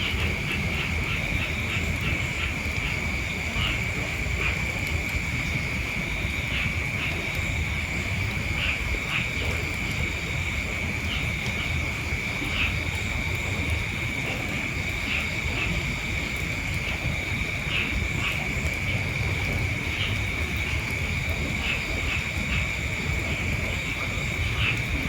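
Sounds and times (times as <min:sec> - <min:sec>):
insect chirps: 0:10.0 - 0:25.0.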